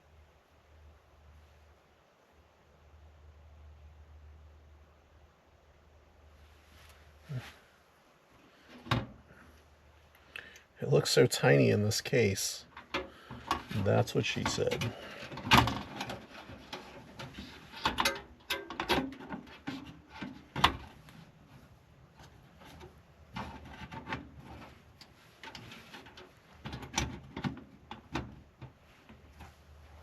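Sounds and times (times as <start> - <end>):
computer parts clicking in metal case: 12.7 - 21.0.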